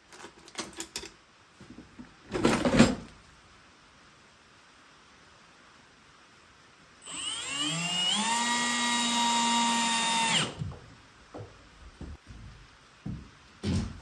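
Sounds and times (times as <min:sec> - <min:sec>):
electric drill whining: 0:07.0 - 0:10.6.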